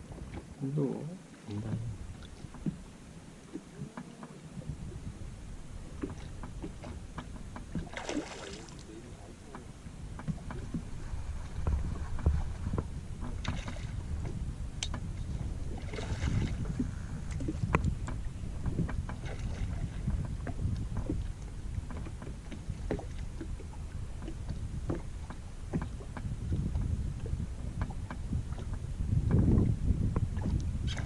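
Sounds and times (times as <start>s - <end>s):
water splashing and sloshing: 0.0s - 31.0s
wind rumble on microphone: 0.0s - 31.0s.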